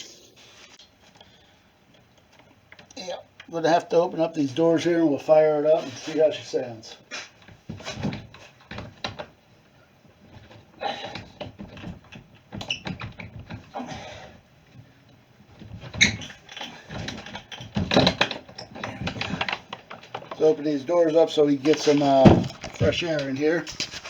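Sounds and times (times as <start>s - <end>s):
objects knocking and clattering: 7.4s - 20.5s, 21.6s - 24.0s
objects scraping: 21.6s - 24.0s.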